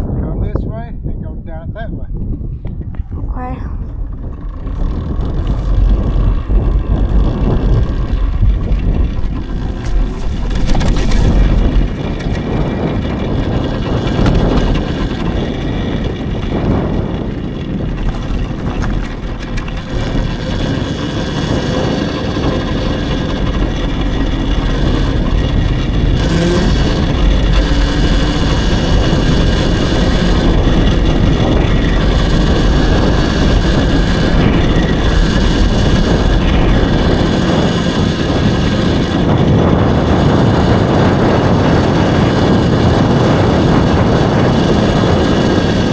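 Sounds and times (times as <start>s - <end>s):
wind rush on microphone: 0.0s - 45.9s.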